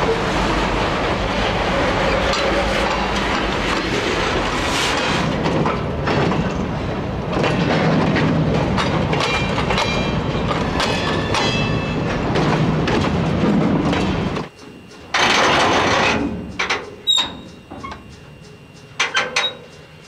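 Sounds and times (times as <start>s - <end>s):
train wheels clicking over rail joints: 1.6s - 20.0s
high wheel squeals: 17.0s - 19.9s.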